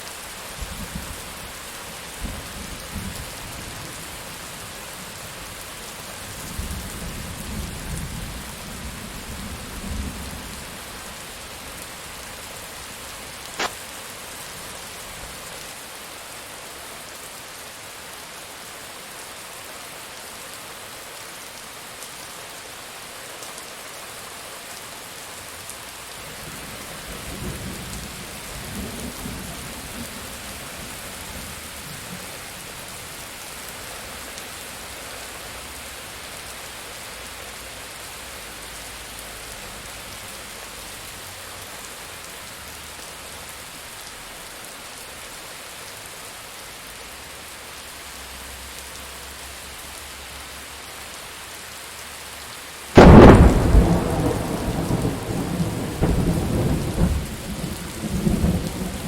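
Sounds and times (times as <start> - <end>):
steady rain: 0.0 - 59.0
thunderclap and rumbling: 53.0 - 59.0.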